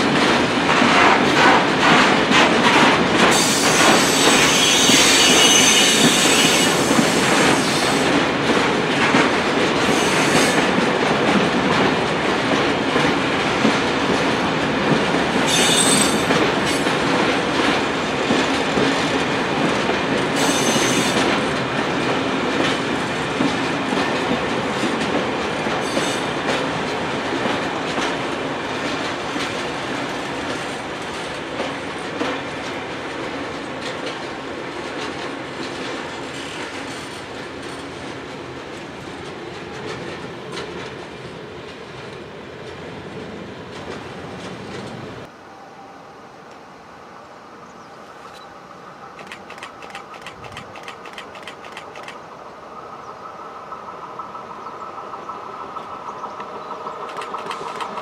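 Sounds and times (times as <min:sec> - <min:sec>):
train wheels rumbling: 0:00.0 - 0:45.3, 0:48.3 - 0:58.0
high wheel squeals: 0:03.4 - 0:07.9, 0:15.5 - 0:16.3, 0:20.4 - 0:21.2
wheels clicking over rail joints: 0:05.3 - 0:43.0, 0:49.1 - 0:52.2, 0:53.7 - 0:58.0.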